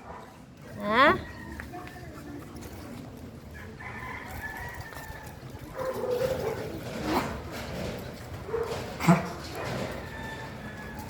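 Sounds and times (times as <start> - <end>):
rooster crowing: 3.6 - 5.4, 9.9 - 11.0.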